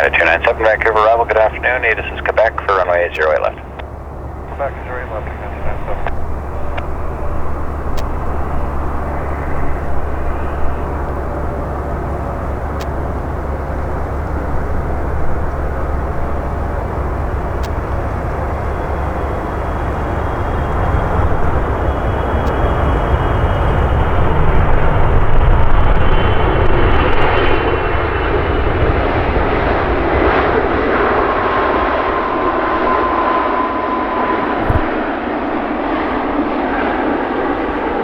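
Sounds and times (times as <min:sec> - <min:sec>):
thin high whine: 0:00.0 - 0:28.0
jet engine rush: 0:00.0 - 0:38.0.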